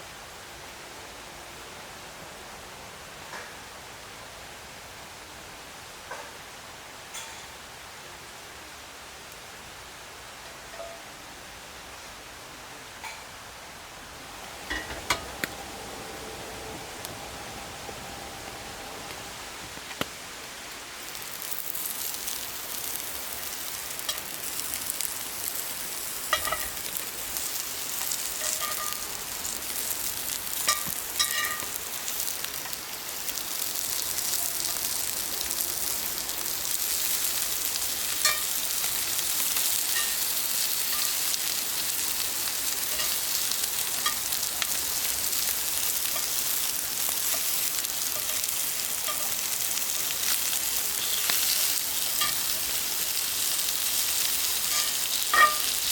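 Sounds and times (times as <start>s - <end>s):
food sizzling in a pan: 14.0s - 55.9s.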